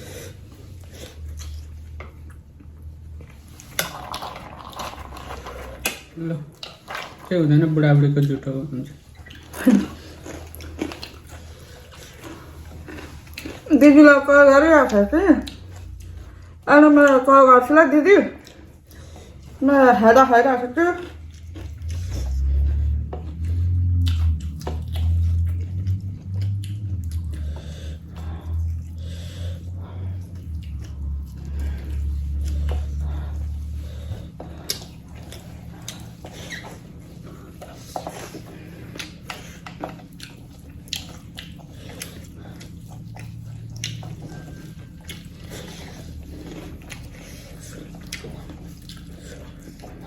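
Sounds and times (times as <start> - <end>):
chewing and biting food: 0.0 - 13.9, 14.8 - 16.6, 21.0 - 50.0
steady low hum: 0.0 - 50.0
mouth clicks and smacks: 23.3 - 29.0, 38.9 - 45.5.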